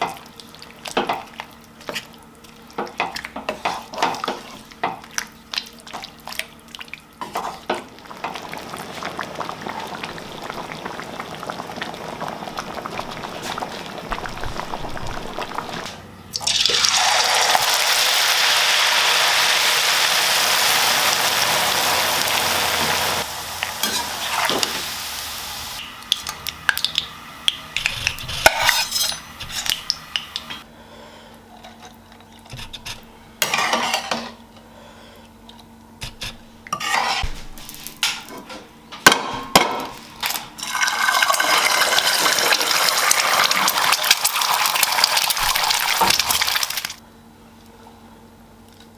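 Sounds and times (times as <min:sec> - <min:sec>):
loud steady hiss: 0:17.3 - 0:25.8
utensil scraping a pan: 0:27.8 - 0:29.8, 0:36.0 - 0:37.4
utensils and dishes clattering: 0:27.8 - 0:30.6, 0:31.6 - 0:34.4
metal clinking on cookware: 0:28.4 - 0:29.4.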